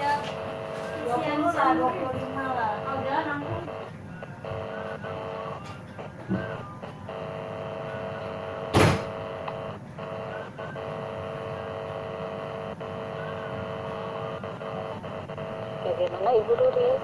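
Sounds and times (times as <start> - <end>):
electronic hum: 0.0 - 17.0
loud burst of noise: 8.6 - 11.9.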